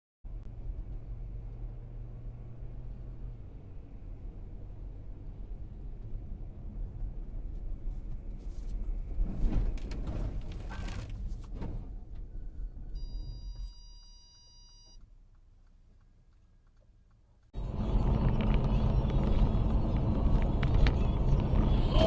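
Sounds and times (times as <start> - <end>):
car road rumble: 0.3 - 22.0
steady electronic beep: 13.0 - 15.0.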